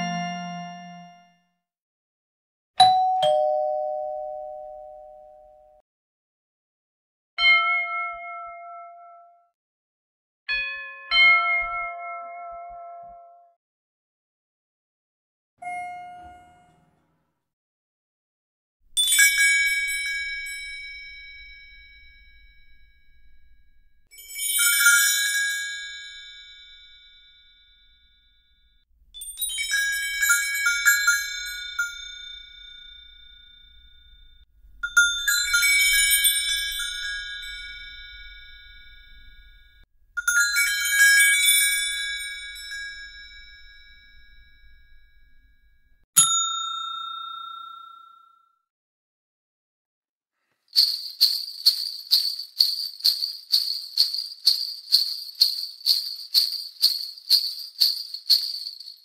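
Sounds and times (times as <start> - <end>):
high-pitched bell ringing: 19.0 - 48.4, 50.8 - 59.0.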